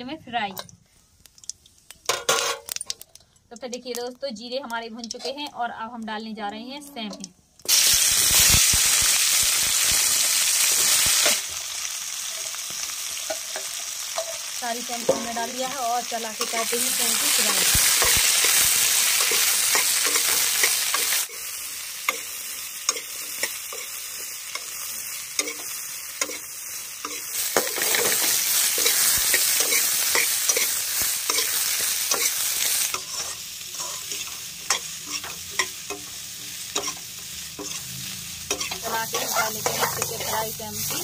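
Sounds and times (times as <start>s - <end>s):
beans sizzling in hot oil: 0.0s - 41.0s
metal spatula scraping pan: 27.1s - 41.0s.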